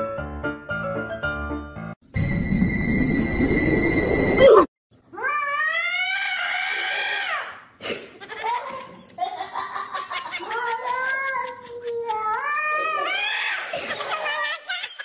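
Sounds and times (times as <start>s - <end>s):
cat yowling: 5.2s - 7.4s.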